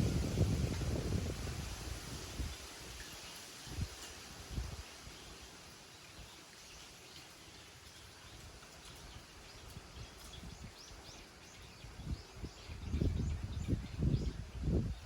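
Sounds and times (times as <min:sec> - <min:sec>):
soft wind noise: 0:00.0 - 0:15.0
small birds chirping: 0:04.5 - 0:15.0.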